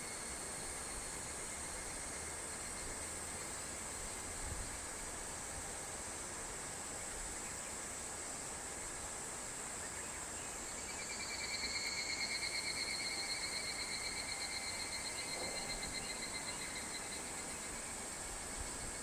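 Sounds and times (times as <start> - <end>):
high-pitched insect hiss: 9.7 - 19.0
cicada trilling: 10.8 - 19.0.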